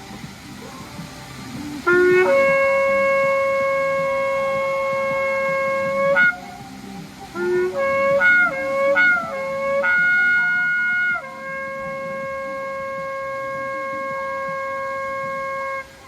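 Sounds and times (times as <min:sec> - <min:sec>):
ram's horn trumpet blown: 0:01.8 - 0:16.0.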